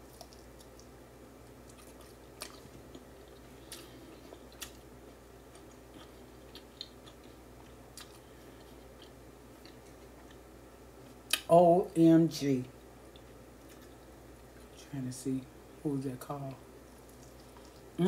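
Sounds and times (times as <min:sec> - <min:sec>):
person chewing meat: 0:00.0 - 0:11.4, 0:12.8 - 0:14.7, 0:16.9 - 0:18.0.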